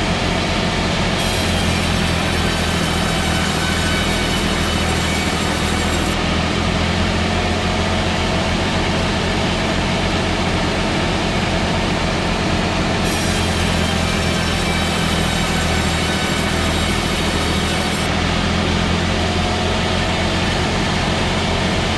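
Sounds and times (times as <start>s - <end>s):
machine motor humming: 0.0s - 6.2s, 8.9s - 21.9s.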